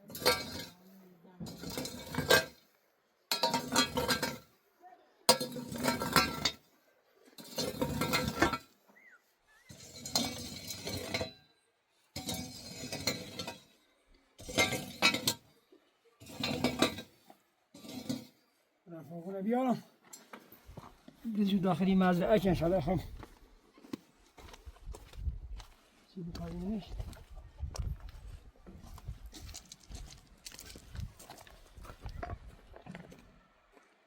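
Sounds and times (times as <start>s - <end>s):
metal shovel scraping manure: 0.0s - 4.6s, 5.3s - 18.7s.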